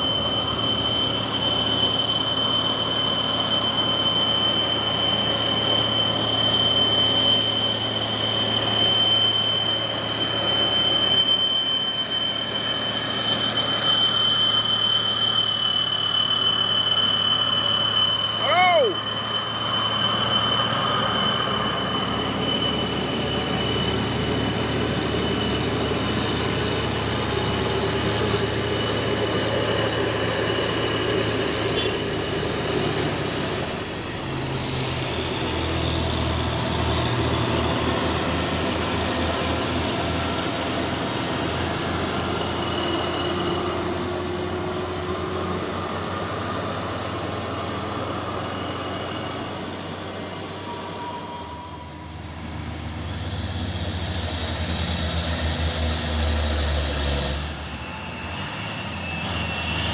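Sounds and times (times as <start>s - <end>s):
truck diesel engine running: 0.0s - 50.9s
thin high whine: 0.0s - 59.9s.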